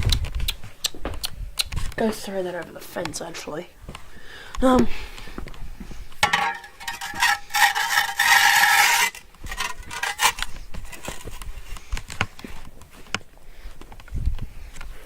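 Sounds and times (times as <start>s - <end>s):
object scraping along a path: 6.6s - 11.4s.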